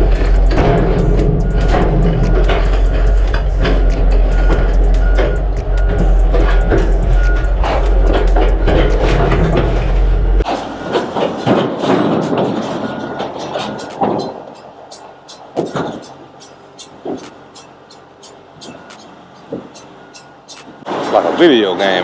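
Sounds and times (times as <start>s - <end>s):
music with heavy bass: 0.0s - 10.7s
heavy metal knocks: 0.0s - 14.4s
steel tracks clanking: 0.0s - 22.0s.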